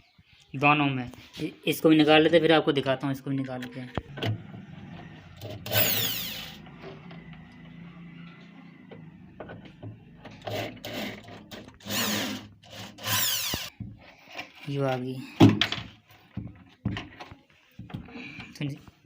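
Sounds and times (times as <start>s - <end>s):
electric screwdriver motor whine: 5.4s - 7.6s, 11.8s - 13.7s.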